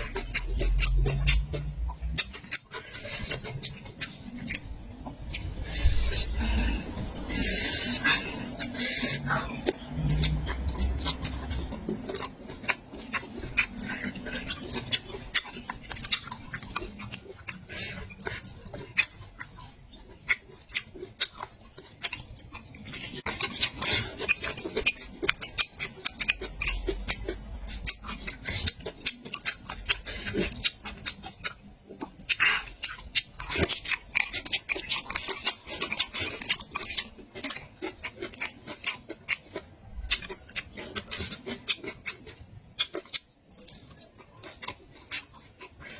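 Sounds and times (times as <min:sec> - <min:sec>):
chewing and smacking: 0:00.0 - 0:45.9.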